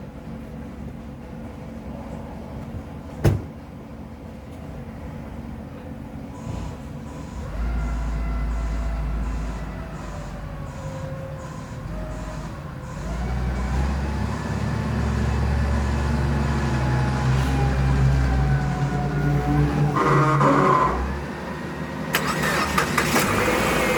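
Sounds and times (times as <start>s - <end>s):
car engine revving: 11.6s - 23.9s.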